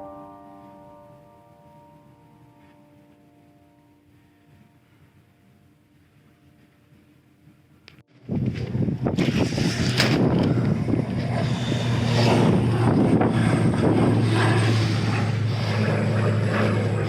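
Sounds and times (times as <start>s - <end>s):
steady low hum: 0.0s - 17.0s
wind buffeting microphone: 8.1s - 17.0s.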